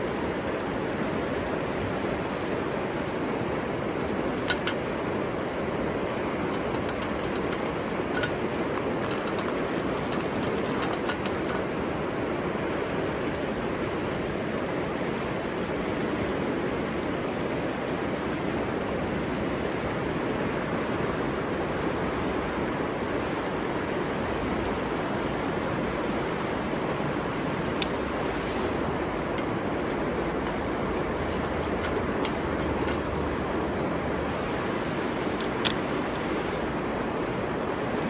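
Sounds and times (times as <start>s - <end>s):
river water rushing: 17.0s - 38.0s.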